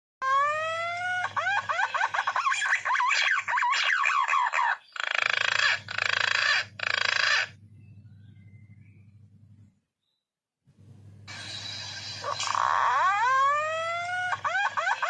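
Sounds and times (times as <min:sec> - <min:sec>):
pigeon calling: 0:00.2 - 0:07.9, 0:12.1 - 0:15.0
faint low hum: 0:05.6 - 0:15.0.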